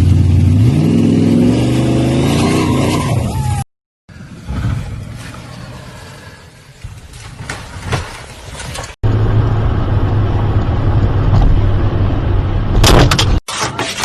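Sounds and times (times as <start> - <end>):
low engine drone: 9.0 - 13.0.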